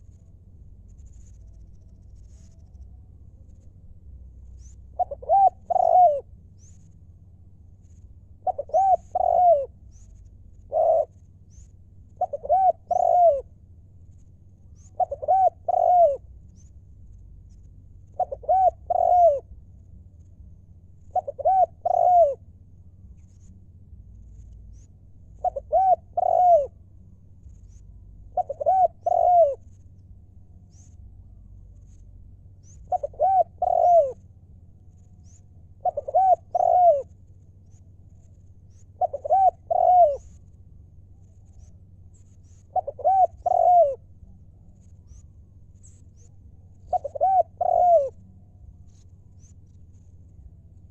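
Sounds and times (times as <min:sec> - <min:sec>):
dove cooing: 0:04.5 - 0:06.4, 0:08.3 - 0:11.2, 0:12.1 - 0:13.6, 0:14.8 - 0:16.7, 0:18.1 - 0:19.6, 0:21.0 - 0:22.5, 0:25.4 - 0:26.8, 0:28.3 - 0:29.8, 0:32.6 - 0:34.3, 0:35.2 - 0:37.2, 0:38.8 - 0:40.4, 0:42.6 - 0:44.1, 0:46.2 - 0:48.2.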